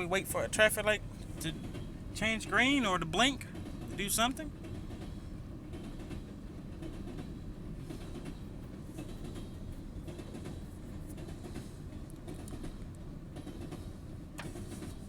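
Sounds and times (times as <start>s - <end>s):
freight train rumbling past: 0.0s - 15.0s
train wheel clicks: 7.9s - 15.0s.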